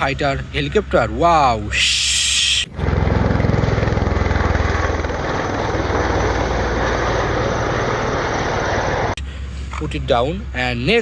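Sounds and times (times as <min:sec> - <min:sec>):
helicopter rotor chop: 0:00.0 - 0:09.2.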